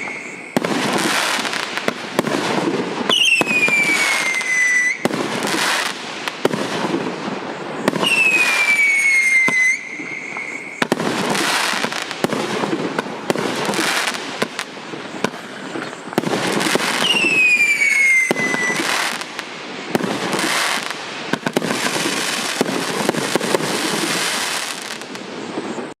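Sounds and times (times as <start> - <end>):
falling firework whistles: 0.0 - 26.0
firework crackling bursts: 0.0 - 26.0.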